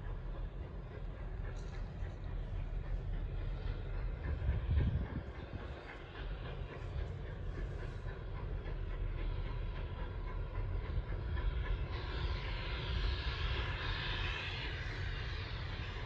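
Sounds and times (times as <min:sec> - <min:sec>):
faint rhythmic clicks: 0:00.0 - 0:12.2
steam hiss: 0:00.0 - 0:16.0
steam train rumbling: 0:00.0 - 0:16.0.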